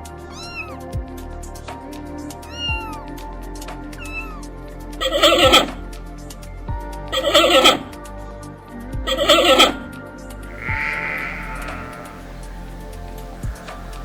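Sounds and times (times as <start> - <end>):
background music: 0.0 - 14.0
cat meowing: 0.2 - 0.8, 2.4 - 3.0, 4.0 - 5.8, 7.1 - 7.9, 9.1 - 9.9, 10.5 - 12.4.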